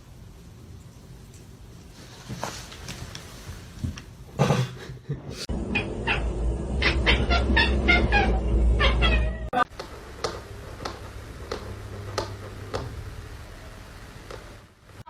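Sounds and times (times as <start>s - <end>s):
cat meowing: 5.7s - 9.6s.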